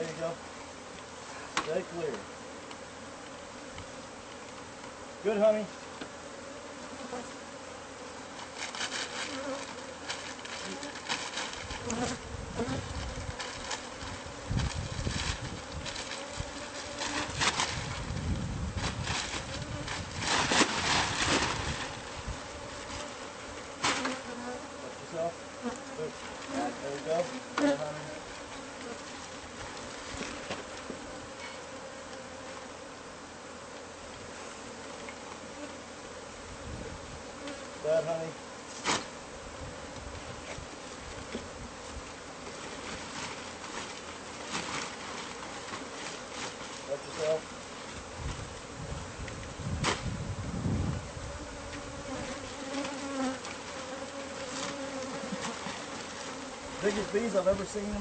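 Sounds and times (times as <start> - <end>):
honeybees buzzing: 0.0 - 58.0
rustling and crackling: 8.3 - 24.5, 25.6 - 32.7, 39.9 - 50.2, 51.7 - 58.0.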